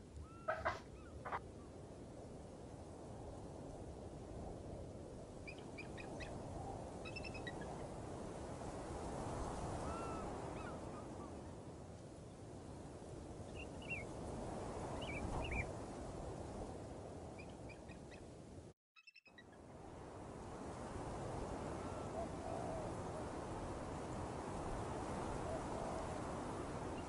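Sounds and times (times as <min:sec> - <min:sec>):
bird chirps: 0:00.2 - 0:01.4, 0:19.0 - 0:19.5.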